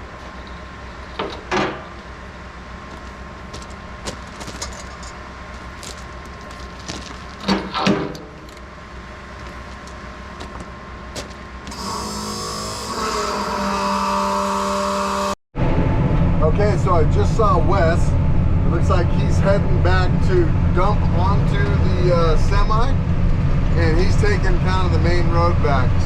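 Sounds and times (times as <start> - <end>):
vehicle engine running: 16.0 - 26.0.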